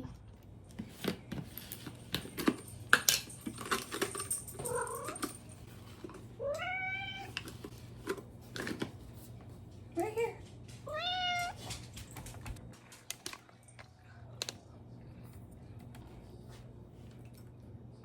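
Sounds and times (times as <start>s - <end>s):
cat meowing: 6.4s - 7.4s, 10.9s - 11.6s.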